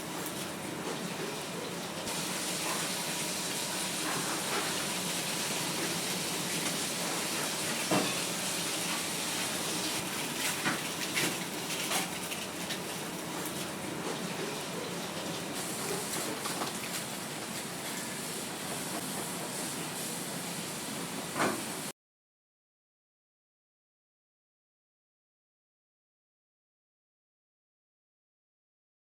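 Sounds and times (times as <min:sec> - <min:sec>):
fish sizzling over charcoal: 0:02.0 - 0:21.0.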